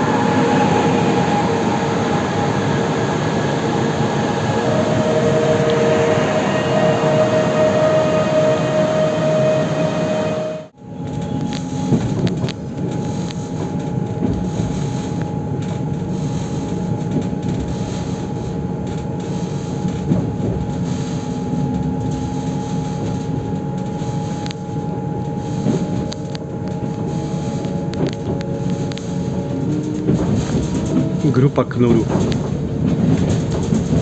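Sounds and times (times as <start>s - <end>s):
motor whine: 0.0s - 15.5s
train running noise: 0.0s - 34.0s
wheels clicking on rails: 10.9s - 34.0s.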